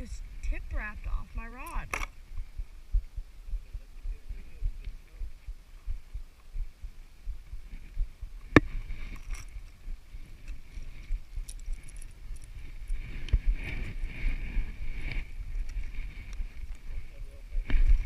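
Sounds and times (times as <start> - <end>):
small scattered clicks: 10.4 - 12.6.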